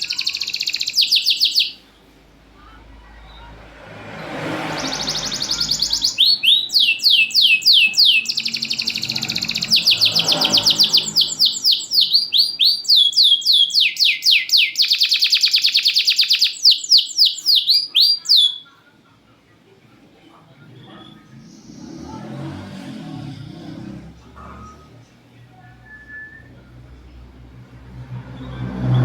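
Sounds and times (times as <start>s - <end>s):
canary singing trills: 0.0s - 2.2s, 4.2s - 18.8s, 20.5s - 22.5s.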